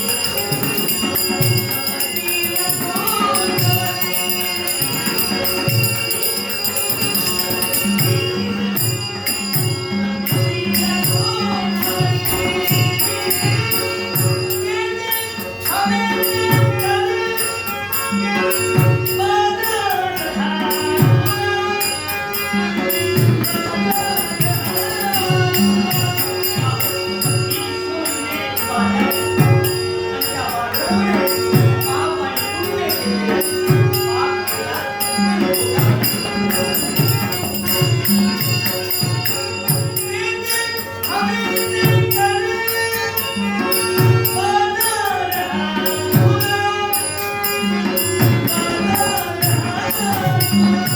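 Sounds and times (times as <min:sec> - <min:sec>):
drum beating a repeated pattern: 0:00.0 - 0:50.9
jingling cymbals: 0:00.0 - 0:50.9.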